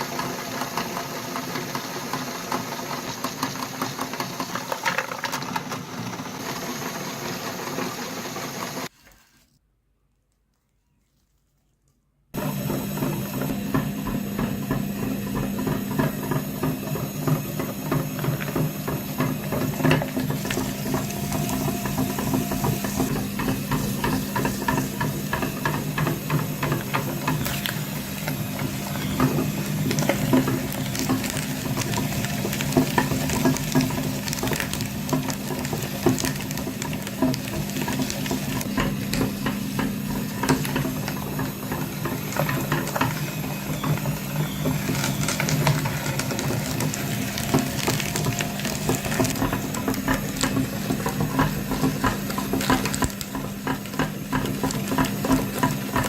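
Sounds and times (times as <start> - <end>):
small motor humming: 12.4 - 56.0
rapid clicking and rattling: 17.6 - 43.2.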